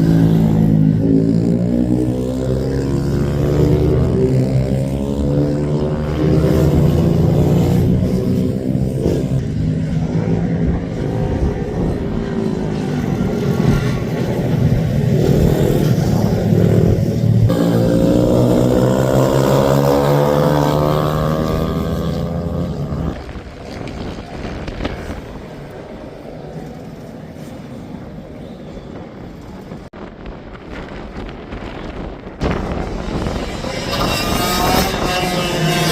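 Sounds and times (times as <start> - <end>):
racing minibike engines revving: 0.0 - 24.2, 32.4 - 35.9.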